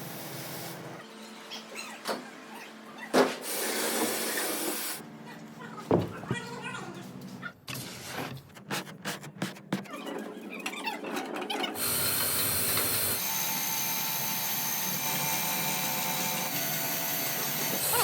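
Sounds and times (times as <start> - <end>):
mixer machine hissing and whining: 11.8 - 18.0.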